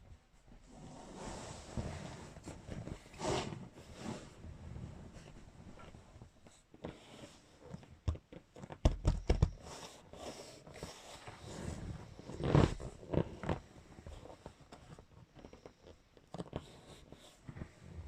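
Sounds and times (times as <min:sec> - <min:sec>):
handling knocks and taps: 0:07.8 - 0:09.6.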